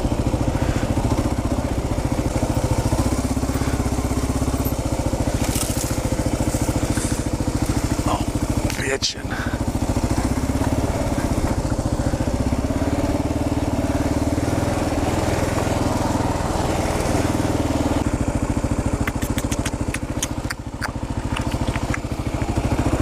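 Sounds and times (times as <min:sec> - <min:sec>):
motorcycle engine running: 0:00.0 - 0:23.0
sharp clicks and knocks: 0:19.0 - 0:22.6.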